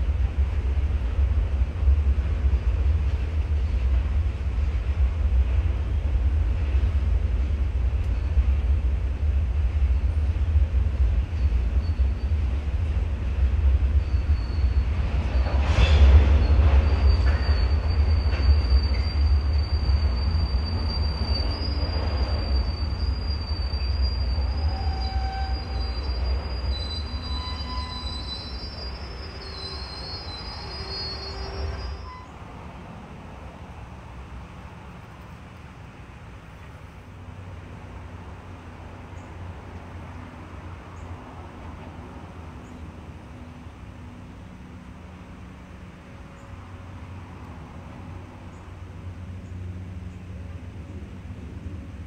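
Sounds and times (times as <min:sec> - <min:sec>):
freight train rumbling past: 0:00.0 - 0:52.0
train wheels squealing: 0:08.0 - 0:08.8, 0:11.2 - 0:32.6.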